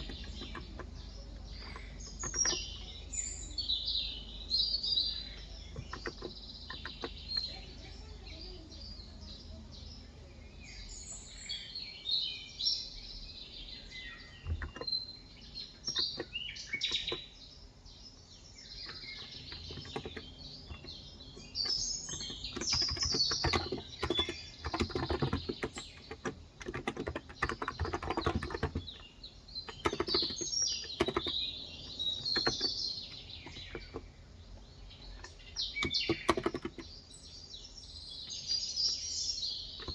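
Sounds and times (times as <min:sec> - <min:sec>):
soft keyboard typing: 0:00.0 - 0:03.1, 0:05.3 - 0:08.6, 0:14.4 - 0:15.0, 0:15.7 - 0:17.3, 0:18.8 - 0:34.1, 0:35.0 - 0:36.9
birds chirping: 0:00.0 - 0:39.9.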